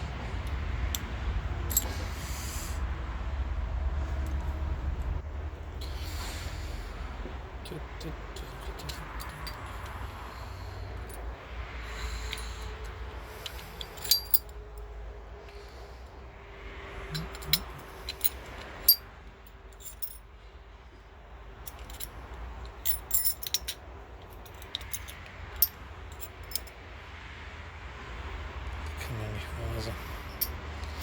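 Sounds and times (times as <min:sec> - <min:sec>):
small metal parts clinking: 0:00.9 - 0:02.1, 0:07.6 - 0:10.0, 0:11.9 - 0:14.6, 0:17.0 - 0:20.2, 0:21.6 - 0:26.8, 0:30.2 - 0:31.0.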